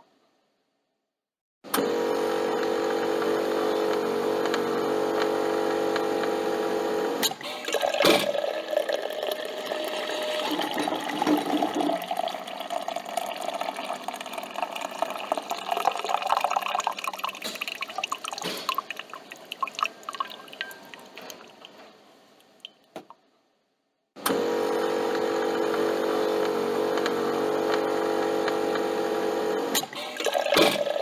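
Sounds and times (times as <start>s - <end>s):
coffee pouring into a cup: 7.5s - 21.8s, 30.1s - 31.0s.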